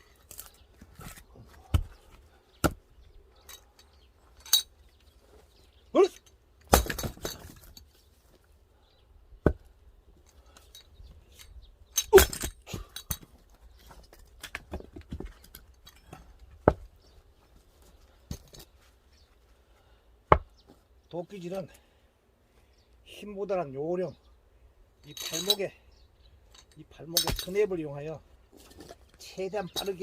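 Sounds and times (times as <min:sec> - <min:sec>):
axe chopping wood: 0:01.1 - 0:02.8, 0:06.6 - 0:07.6, 0:09.4 - 0:09.7, 0:16.6 - 0:16.9, 0:20.3 - 0:20.6.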